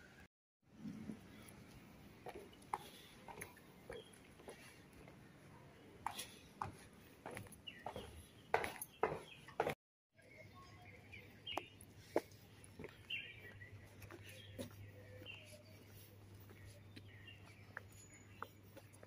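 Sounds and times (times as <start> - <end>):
small birds chirping: 1.2 - 19.0.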